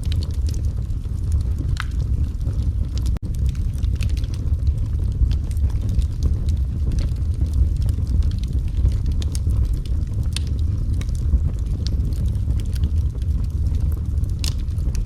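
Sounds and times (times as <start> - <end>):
flames rumbling: 0.0 - 15.0
wood fire popping and snapping: 0.0 - 15.0.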